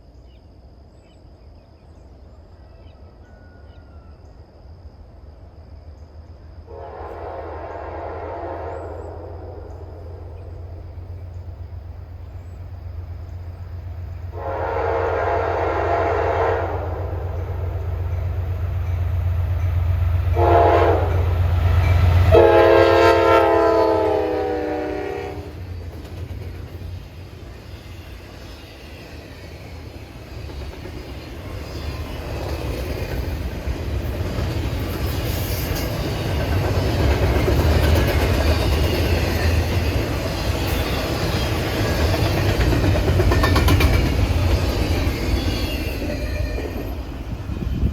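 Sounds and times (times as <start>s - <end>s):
train wheels on rails: 6.2s - 47.9s
locomotive horn blasts: 6.7s - 10.2s, 14.3s - 17.7s, 20.3s - 21.5s, 22.1s - 25.6s.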